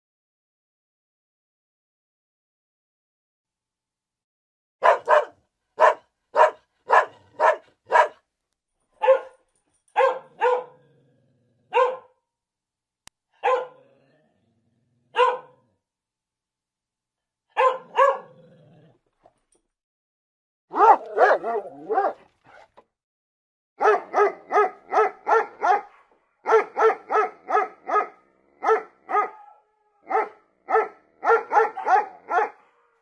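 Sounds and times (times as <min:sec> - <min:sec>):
dog barking: 0:04.8 - 0:08.2, 0:09.0 - 0:10.8, 0:11.7 - 0:12.2, 0:13.4 - 0:13.8, 0:15.1 - 0:15.7, 0:17.5 - 0:18.4, 0:20.7 - 0:22.7, 0:23.8 - 0:33.0.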